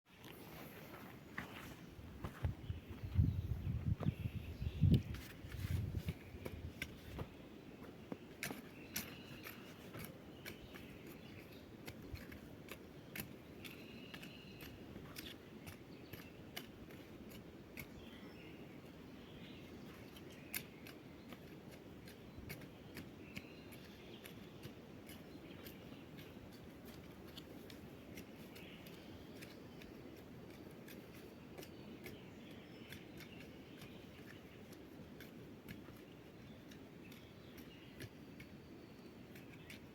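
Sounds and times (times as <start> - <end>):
hand tools clicking and snipping: 8.4 - 17.9, 20.1 - 39.9.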